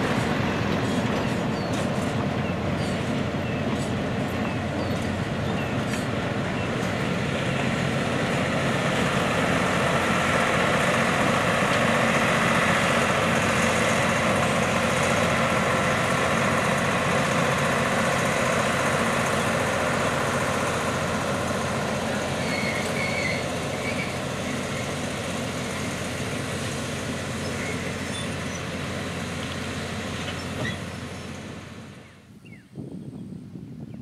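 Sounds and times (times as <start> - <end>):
train cars rumbling on rails: 0.0 - 34.0
faint high squeal: 22.4 - 24.2.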